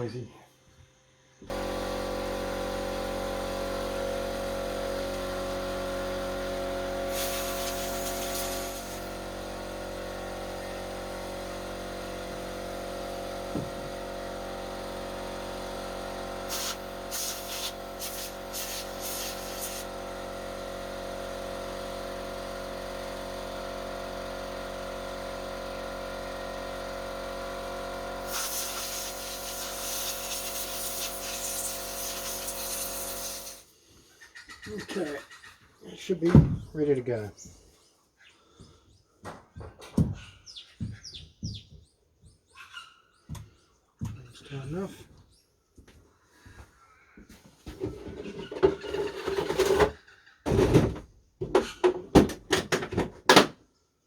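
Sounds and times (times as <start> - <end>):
electric air compressor running: 0.6 - 33.7, 47.7 - 49.9, 50.5 - 51.0
air gun hissing: 1.5 - 9.9, 16.4 - 20.0, 28.2 - 33.7.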